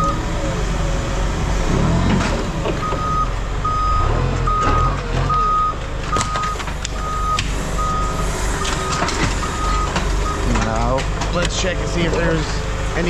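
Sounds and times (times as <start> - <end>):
diesel engine rumble: 0.0 - 13.0
reversing alarm beeping: 2.8 - 10.6.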